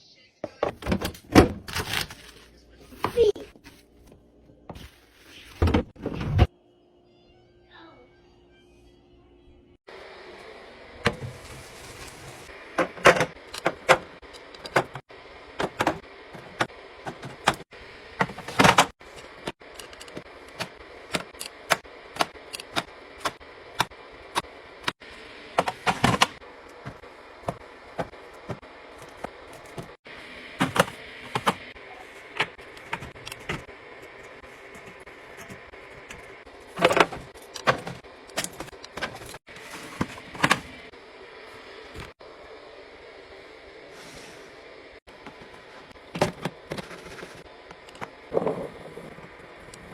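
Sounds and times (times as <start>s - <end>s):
items clattering: 25.6s - 40.8s, 45.2s - 47.4s.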